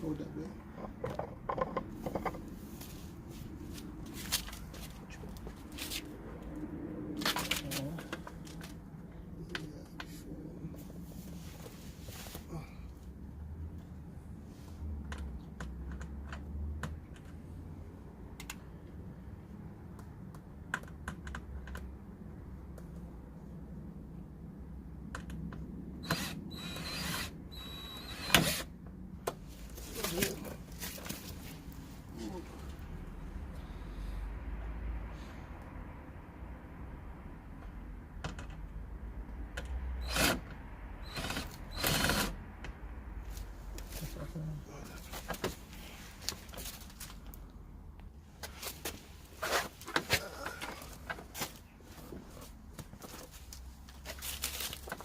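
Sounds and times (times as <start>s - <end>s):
rasping clicking bursts: 40.0s - 42.5s.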